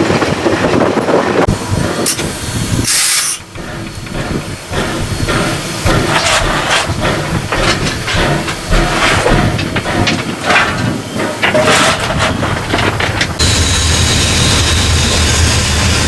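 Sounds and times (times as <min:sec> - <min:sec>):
locomotive engine running: 0:00.0 - 0:16.0
steam hissing: 0:01.5 - 0:11.4, 0:13.4 - 0:16.0.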